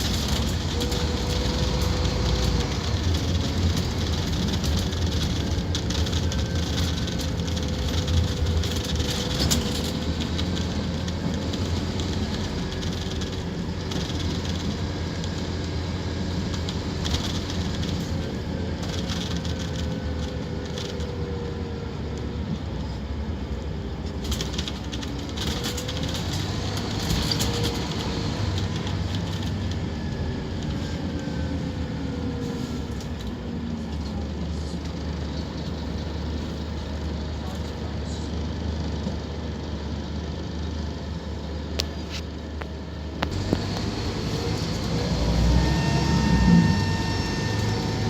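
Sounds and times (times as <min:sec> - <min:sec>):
bus engine drone: 0:00.0 - 0:48.0
gearbox whine rising and dropping: 0:43.2 - 0:48.0.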